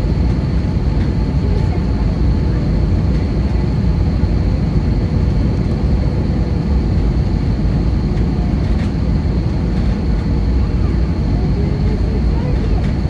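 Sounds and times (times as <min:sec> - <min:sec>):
aircraft cabin engine rumble: 0:00.0 - 0:13.0.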